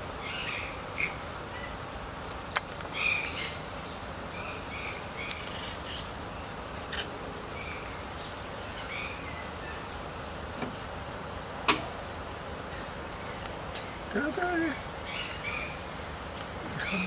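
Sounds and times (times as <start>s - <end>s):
birds chirping: 0.0s - 11.4s, 12.1s - 17.0s
steady outdoor hiss: 0.0s - 17.0s.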